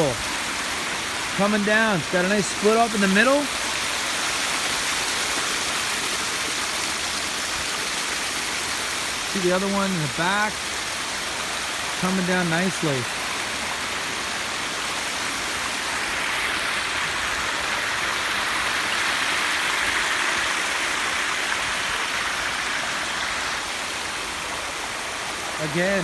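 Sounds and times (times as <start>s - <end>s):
water cascading down rocks: 0.0s - 26.0s.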